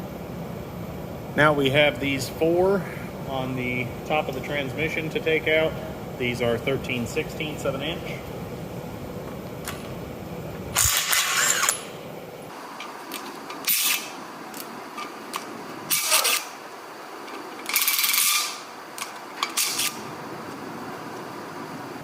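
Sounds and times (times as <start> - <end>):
power tool removing bolts: 10.7 - 11.9, 12.8 - 16.6, 17.3 - 20.1.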